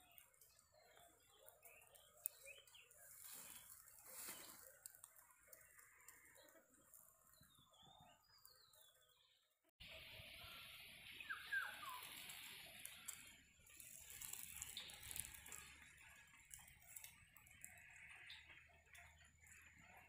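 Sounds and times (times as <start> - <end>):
faint bird calls: 9.8 - 13.3.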